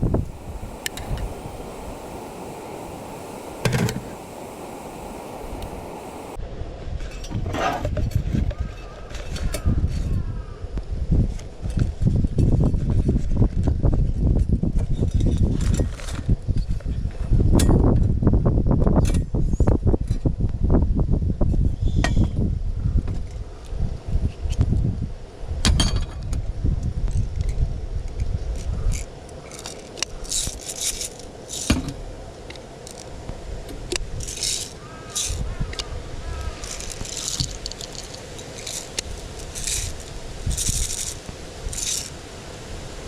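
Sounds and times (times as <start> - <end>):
wind rumbling on microphone: 0.0 - 43.0
metal clinks and scrapes: 29.0 - 31.7, 36.6 - 42.2
gear rustling: 36.4 - 42.2.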